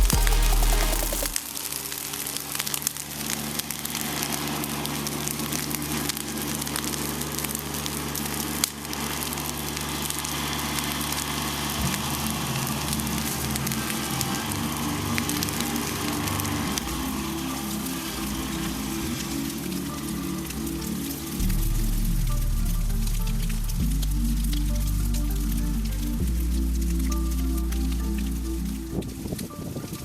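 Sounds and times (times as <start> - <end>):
fire crackling and hissing: 6.4 - 30.0.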